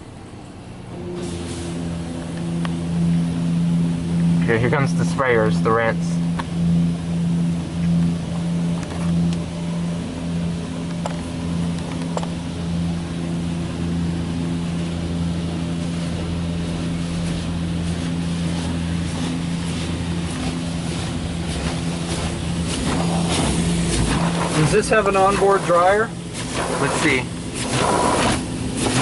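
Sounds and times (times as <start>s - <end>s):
low hum: 0.0s - 29.0s
car wash sprayers hissing: 0.9s - 7.5s, 14.2s - 29.0s.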